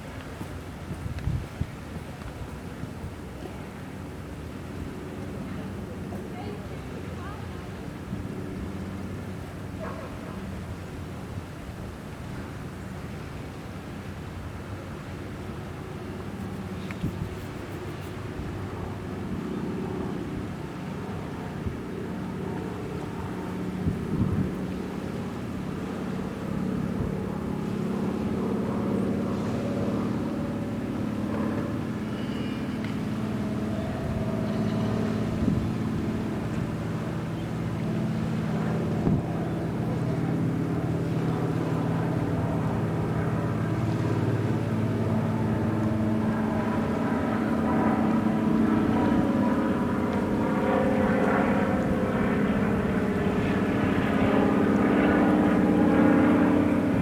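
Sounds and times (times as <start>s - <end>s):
large engine droning: 15.7s - 57.0s.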